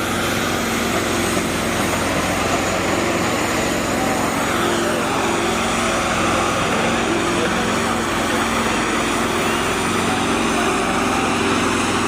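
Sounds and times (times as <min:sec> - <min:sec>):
tractor diesel engines running: 0:00.0 - 0:12.0.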